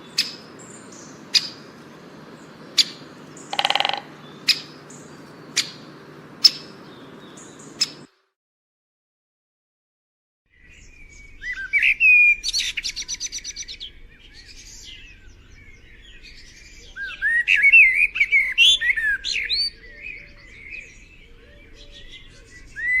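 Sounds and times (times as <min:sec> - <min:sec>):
songbird singing: 0:00.0 - 0:08.3, 0:10.5 - 0:23.0.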